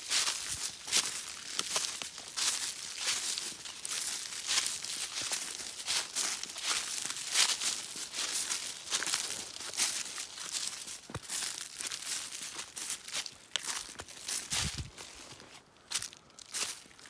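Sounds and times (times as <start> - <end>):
footsteps through leaf litter: 0.0 - 17.0.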